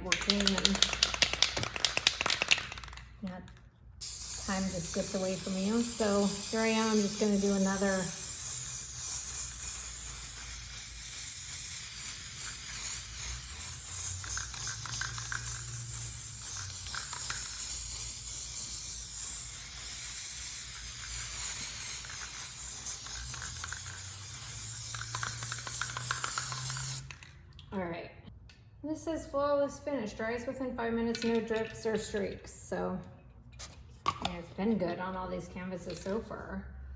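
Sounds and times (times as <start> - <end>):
aerosol can spraying hiss: 4.0 - 27.1.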